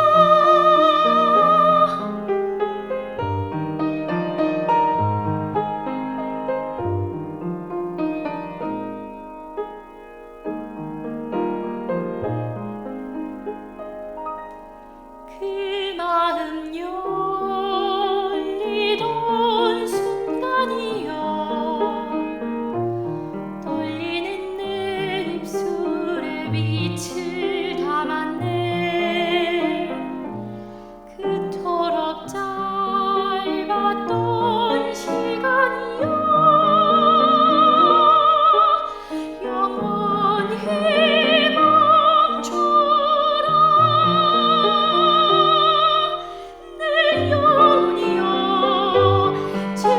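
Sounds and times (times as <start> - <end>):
opera-style singing: 0.0 - 4.3, 15.3 - 49.9
piano accompaniment: 0.0 - 49.9.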